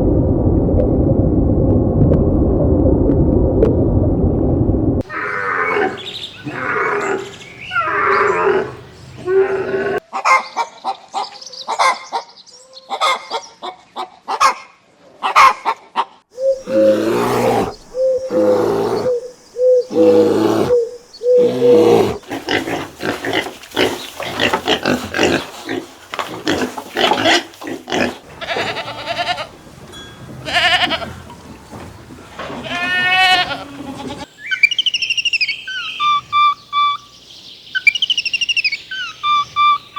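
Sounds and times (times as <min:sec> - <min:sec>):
farm animal calls: 0:15.2 - 0:29.6, 0:30.4 - 0:31.3, 0:32.5 - 0:37.2, 0:37.8 - 0:39.9.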